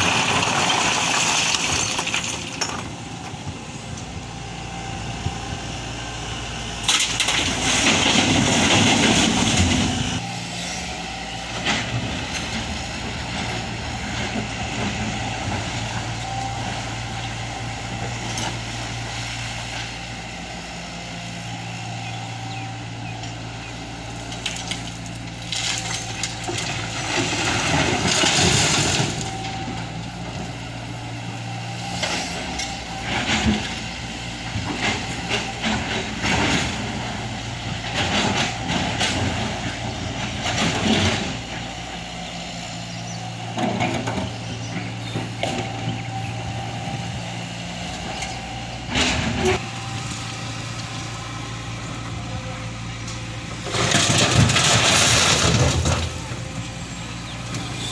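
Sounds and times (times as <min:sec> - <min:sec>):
stone rattling and crashing: 0:00.0 - 0:02.9
heavy diesel engine humming: 0:00.0 - 0:57.9.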